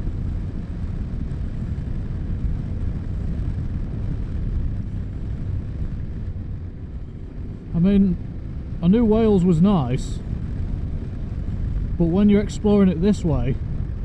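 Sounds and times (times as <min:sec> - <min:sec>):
road rumble: 0:00.0 - 0:14.0
wind noise: 0:00.0 - 0:14.0.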